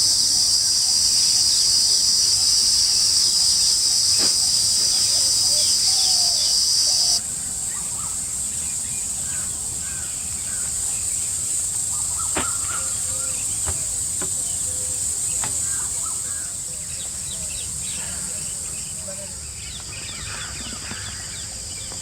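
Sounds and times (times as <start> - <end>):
high insect drone: 0.0 - 22.0.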